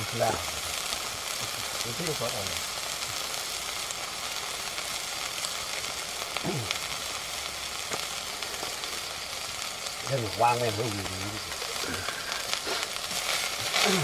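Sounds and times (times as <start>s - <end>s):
food frying in oil: 0.0s - 14.0s.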